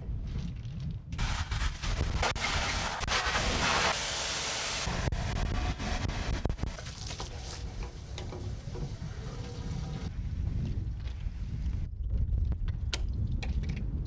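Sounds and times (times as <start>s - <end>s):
steady low rumble: 0.0s - 14.0s
pressure washer spraying water: 1.2s - 8.7s.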